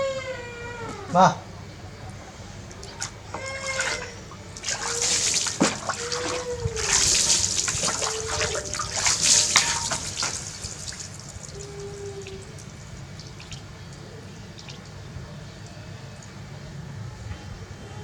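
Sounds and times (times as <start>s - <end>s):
water splashing and pouring: 2.7s - 15.1s.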